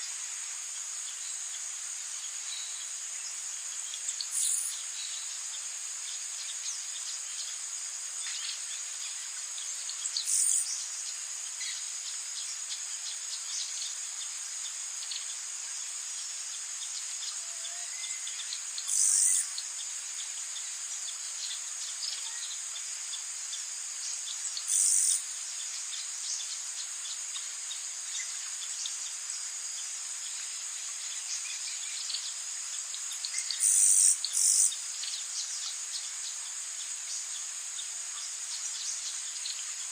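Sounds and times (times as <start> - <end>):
insects trilling: 0.0 - 39.9
faint bird chirps: 3.8 - 5.4, 16.8 - 23.3, 24.0 - 29.5, 31.0 - 37.4.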